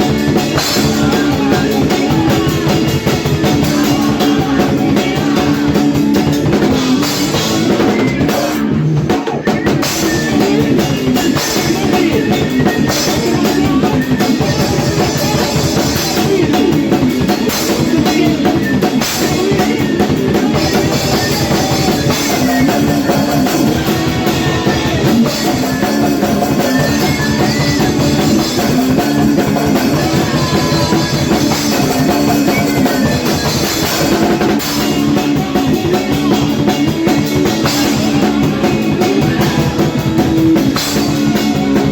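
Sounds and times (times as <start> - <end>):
bass guitar: 0.0 - 41.9
distorted electric guitar: 0.0 - 41.9
driving drum kit: 0.0 - 41.9.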